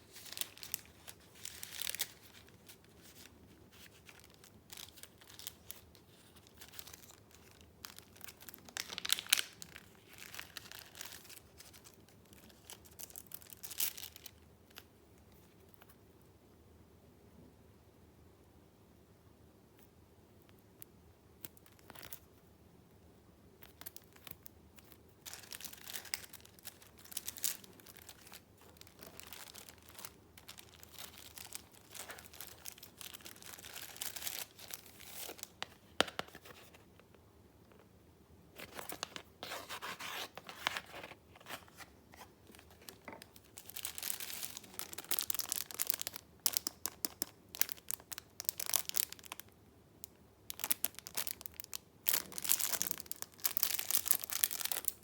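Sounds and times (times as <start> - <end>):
paper rustling and crinkling: 0.0 - 13.3, 38.6 - 46.2.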